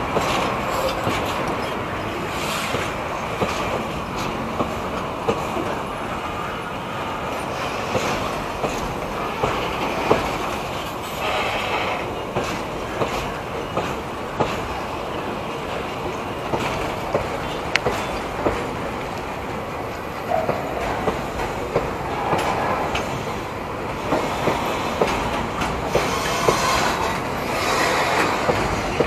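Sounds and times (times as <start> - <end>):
wheels clicking over rail joints: 0.0 - 5.9, 7.6 - 29.0
train wheels rumbling on rails: 0.0 - 29.0
shrill wheel squeal: 26.0 - 28.5.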